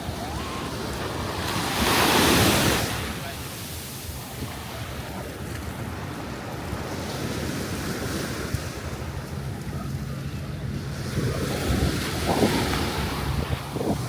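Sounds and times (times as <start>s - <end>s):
ocean surf washing on shore: 0.0s - 14.0s
wind buffeting microphone: 3.8s - 14.0s.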